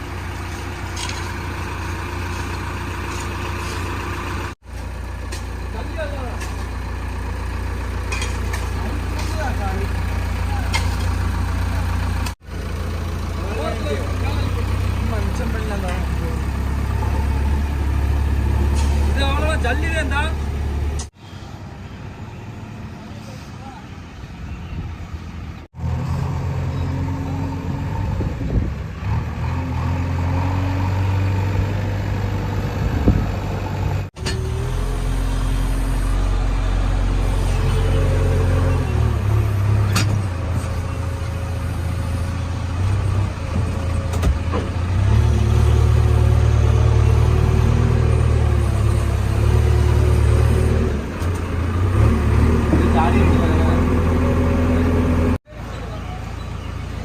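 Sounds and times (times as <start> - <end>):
diesel engine under load: 0.0 - 57.0.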